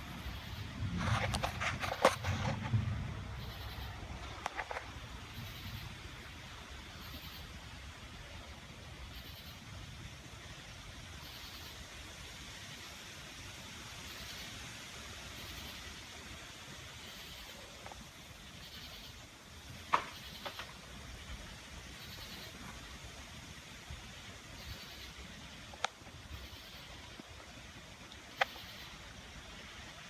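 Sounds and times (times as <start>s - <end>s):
storm rumble and hiss: 0.0s - 30.0s.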